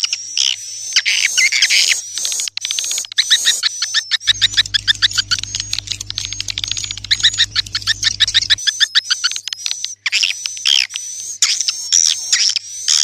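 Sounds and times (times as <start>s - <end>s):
low steady hum: 4.3s - 8.6s.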